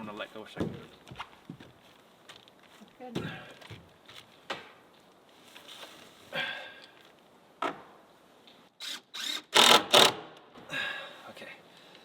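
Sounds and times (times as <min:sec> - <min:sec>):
rustling: 0:01.2 - 0:06.4.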